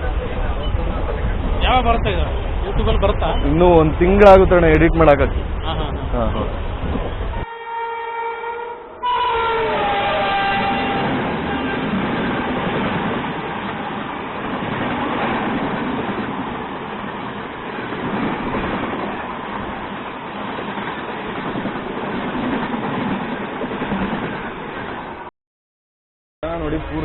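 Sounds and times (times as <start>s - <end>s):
train wheels on rails: 9.8s - 25.3s.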